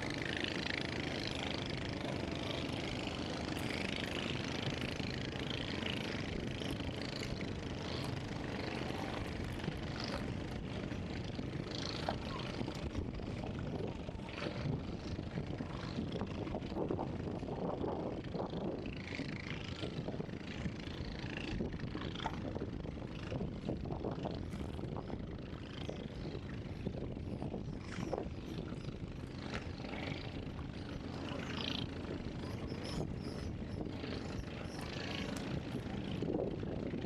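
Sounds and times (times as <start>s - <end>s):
steady low rumble: 0.0s - 37.0s
bird calls: 31.0s - 36.0s.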